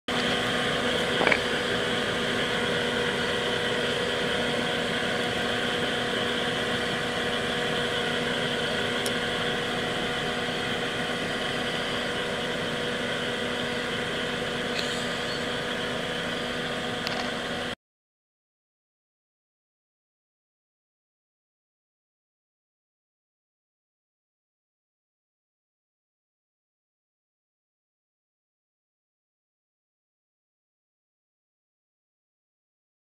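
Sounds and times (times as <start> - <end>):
car engine idling: 0.1 - 17.7.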